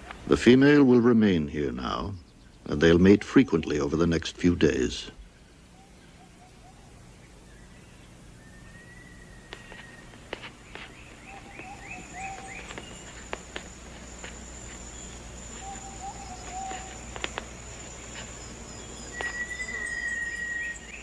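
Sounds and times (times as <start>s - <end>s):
high insect drone: 0.0s - 21.0s
low warbling calls: 0.4s - 21.0s
clear whistled note: 19.1s - 21.0s.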